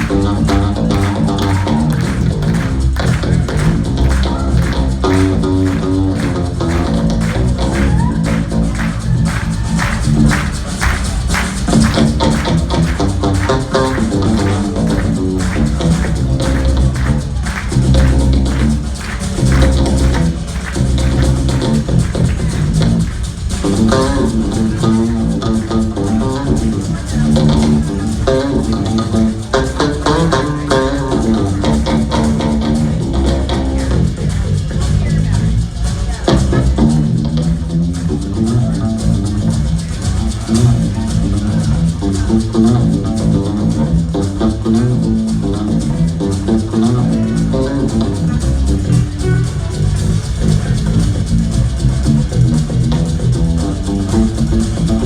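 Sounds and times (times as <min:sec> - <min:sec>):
live rock band playing: 0:00.0 - 0:35.0
bass guitar: 0:00.0 - 0:55.0
drum kit: 0:00.0 - 0:55.0.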